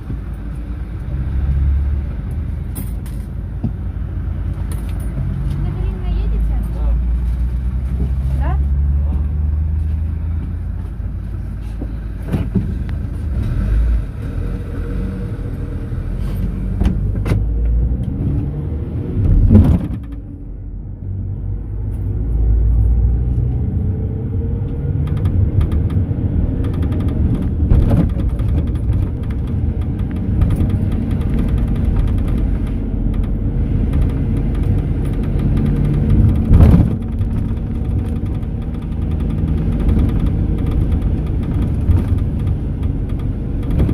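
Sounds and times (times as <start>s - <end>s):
bus engine and road rumble: 0.0s - 43.9s
loud thumps from bumps: 19.1s - 20.3s, 25.1s - 43.9s
rattles: 24.9s - 43.9s.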